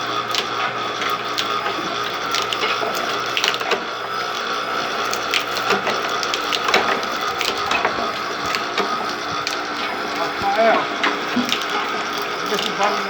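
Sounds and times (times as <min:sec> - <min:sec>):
cutting machine humming: 0:00.0 - 0:13.0.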